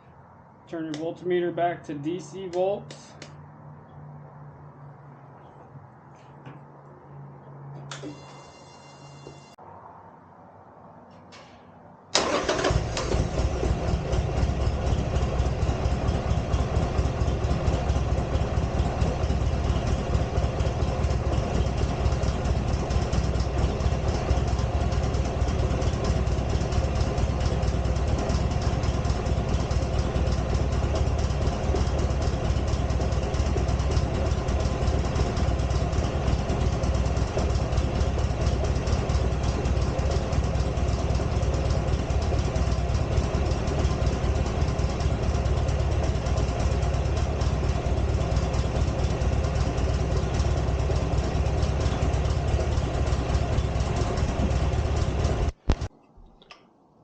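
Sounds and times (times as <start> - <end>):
motorcycle engine idling: 12.2 - 55.9.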